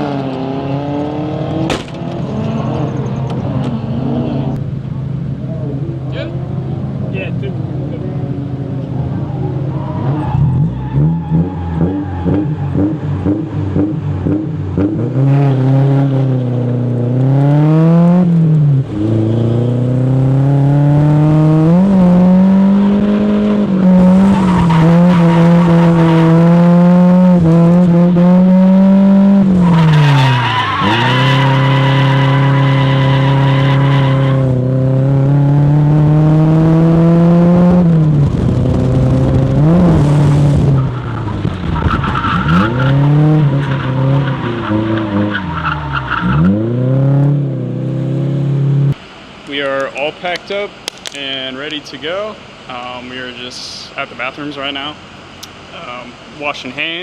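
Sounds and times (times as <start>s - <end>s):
car engine revving: 0.0s - 49.0s
tyres squealing: 29.6s - 34.4s.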